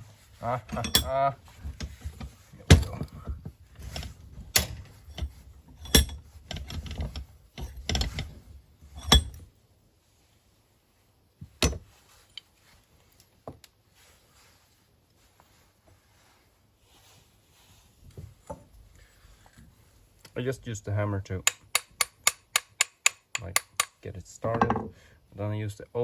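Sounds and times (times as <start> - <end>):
hammer tapping metal: 21.4 - 24.9.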